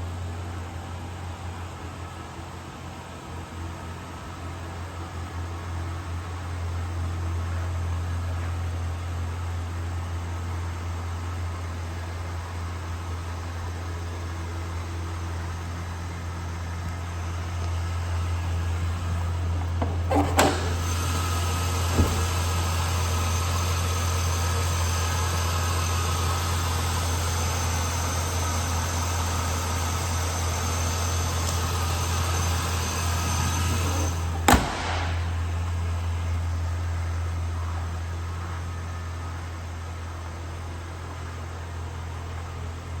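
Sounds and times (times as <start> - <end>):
pickup engine idling: 0.0 - 43.0
sharp clunks: 19.6 - 22.5, 33.9 - 35.8.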